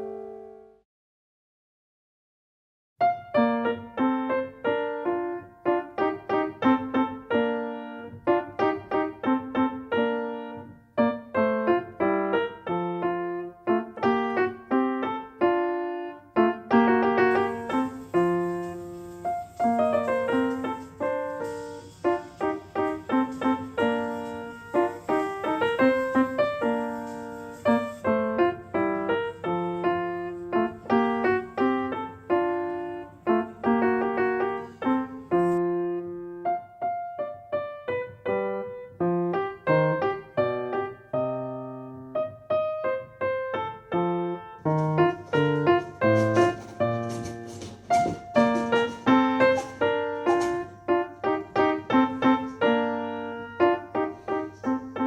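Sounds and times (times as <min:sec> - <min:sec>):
light piano melody: 0:00.0 - 0:00.8, 0:03.0 - 0:55.0
repeating piano bass line: 0:00.0 - 0:00.8, 0:37.6 - 0:55.0.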